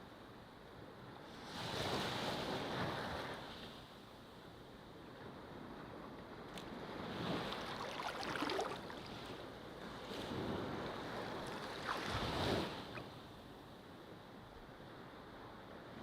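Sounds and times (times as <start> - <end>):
ocean waves breaking on beach: 5.3 - 13.6.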